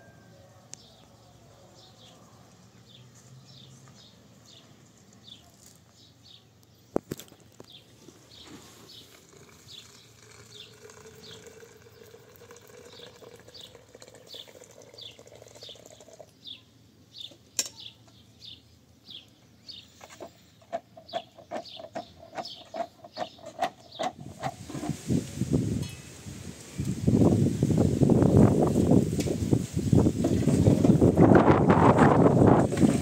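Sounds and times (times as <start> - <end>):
bird chirping: 0.0 - 24.5.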